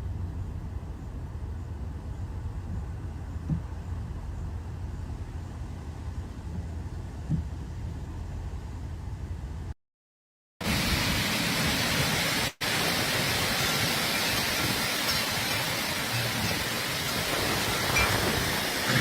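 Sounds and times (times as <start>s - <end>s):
storm rain and wind hissing: 10.6s - 19.0s.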